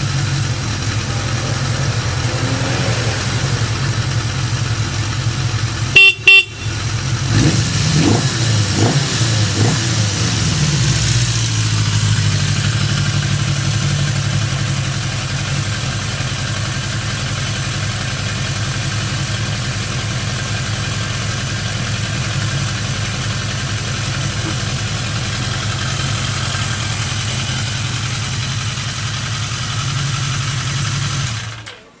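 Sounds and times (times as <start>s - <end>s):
motorcycle engine idling: 0.0s - 7.8s, 8.4s - 32.0s
horn blasts: 5.9s - 7.2s.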